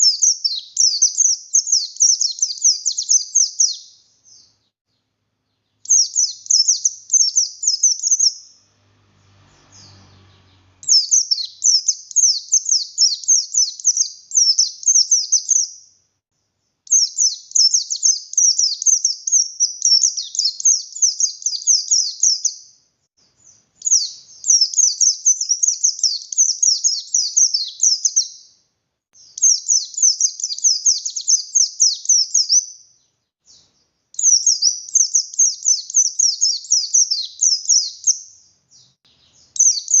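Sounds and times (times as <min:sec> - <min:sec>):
bird twittering song: 0:00.0 - 0:28.6, 0:29.2 - 0:40.0.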